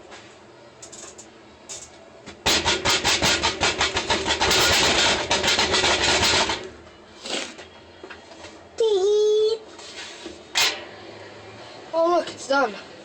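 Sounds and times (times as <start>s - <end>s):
washing machine rubbing rattle: 2.5s - 6.7s.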